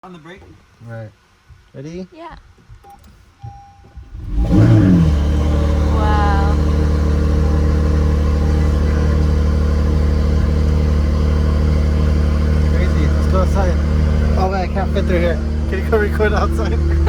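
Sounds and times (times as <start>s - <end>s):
car engine starting and idling: 3.8s - 17.0s.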